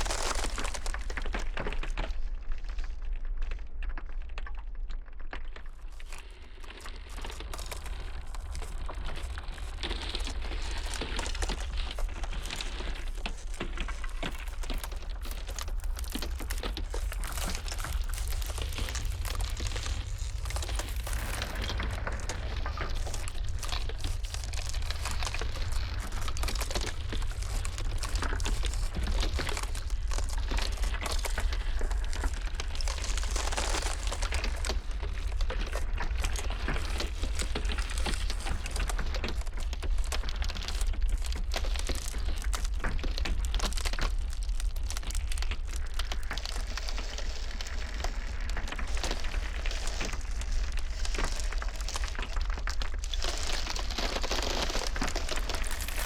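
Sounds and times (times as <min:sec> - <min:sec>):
ice crackling and popping: 0:00.0 - 0:56.0
low rumble: 0:07.5 - 0:38.5.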